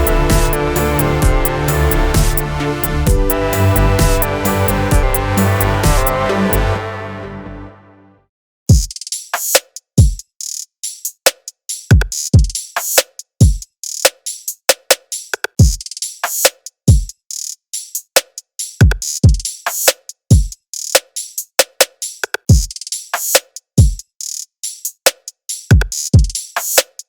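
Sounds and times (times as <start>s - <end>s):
deep kick drums: 0.0s - 6.2s
hi-hat and snare hits: 0.0s - 6.2s, 8.7s - 27.0s.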